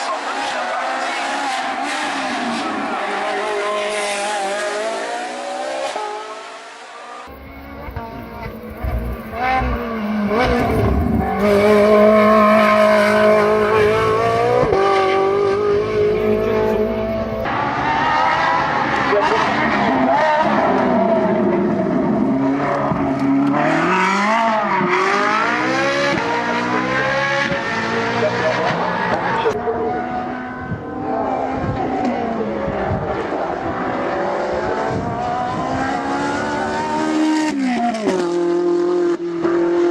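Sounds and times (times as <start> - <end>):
car engine at high revs: 0.0 - 39.9
exhaust crackles: 7.3 - 11.8
sports car engine revving: 7.3 - 17.5.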